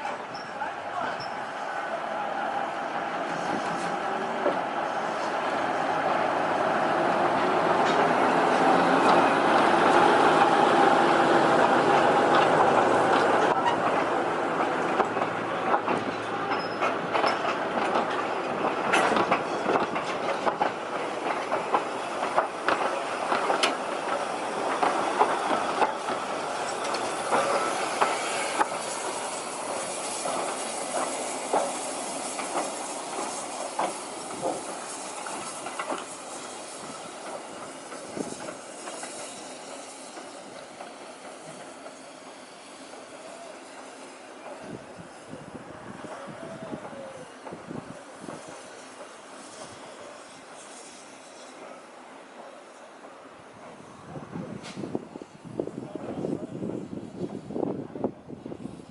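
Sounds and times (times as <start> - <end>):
train wheels clicking over rail joints: 0.0 - 58.9
wheel squeal: 13.5 - 14.0, 16.1 - 18.1, 22.3 - 45.4.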